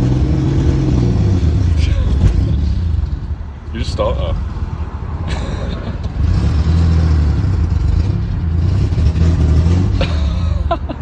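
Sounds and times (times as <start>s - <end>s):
car engine accelerating: 0.0s - 3.4s, 5.8s - 10.7s.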